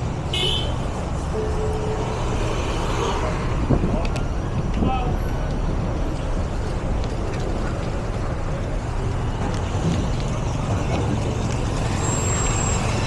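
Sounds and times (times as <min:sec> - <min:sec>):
street traffic rumble: 0:00.0 - 0:13.0
wind on the microphone: 0:02.2 - 0:11.7.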